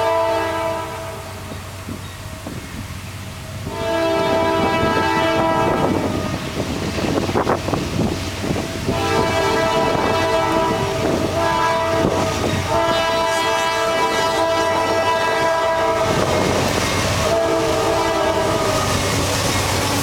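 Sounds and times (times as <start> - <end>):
locomotive air horn blasts: 0.0 - 1.6, 3.6 - 6.6, 8.8 - 19.2
passing train rumble and clatter: 0.0 - 20.0.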